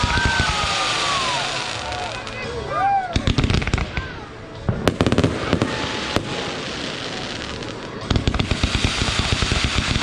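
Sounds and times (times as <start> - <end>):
fireworks bangs: 0.0 - 2.4, 3.2 - 10.0
fireworks crackling: 0.0 - 10.0.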